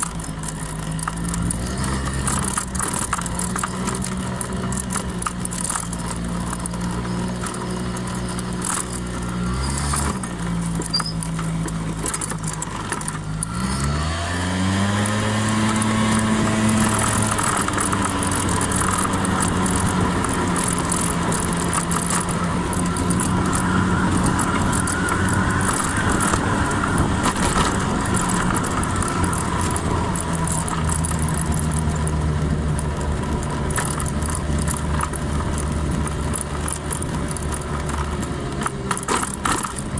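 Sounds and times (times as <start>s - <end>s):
scooter engine revving: 0.0s - 39.9s
wind and road noise: 0.0s - 39.9s.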